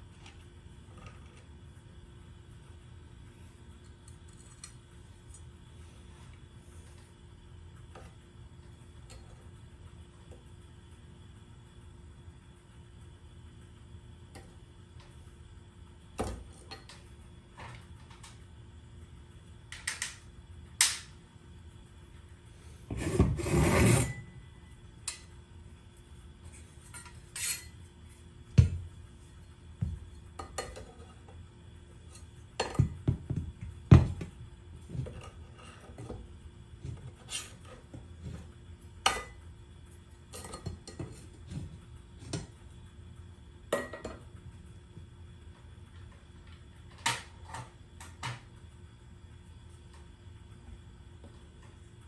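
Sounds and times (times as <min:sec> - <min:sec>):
clicks and knocks of tools: 0:19.7 - 0:20.2
tool scraping: 0:22.9 - 0:24.3.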